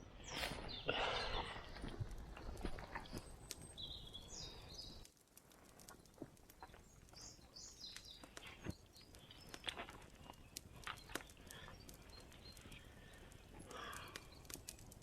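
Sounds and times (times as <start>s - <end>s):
bird chirps: 3.0s - 5.0s, 6.6s - 14.9s.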